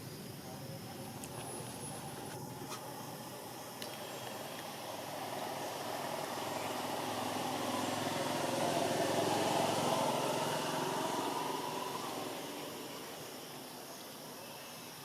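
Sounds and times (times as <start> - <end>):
small engine passing by: 0.8 - 14.3.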